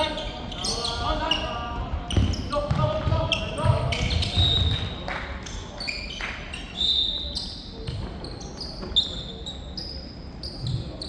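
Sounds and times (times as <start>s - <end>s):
shoes squeaking on court floor: 0.0s - 11.0s
footsteps and ball thumps: 2.1s - 4.9s.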